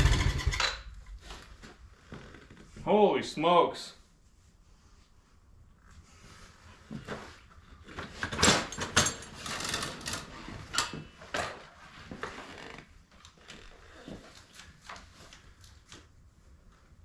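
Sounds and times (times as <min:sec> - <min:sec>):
handling knocks and clatters: 0:06.9 - 0:12.4.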